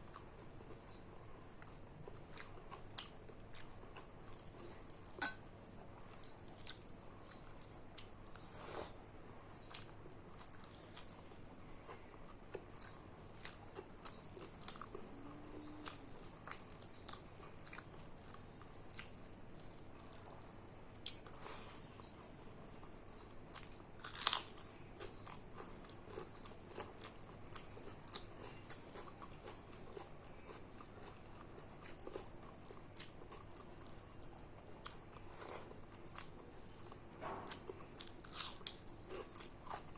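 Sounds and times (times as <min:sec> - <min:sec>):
person chewing and biting food: 0:23.1 - 0:39.9.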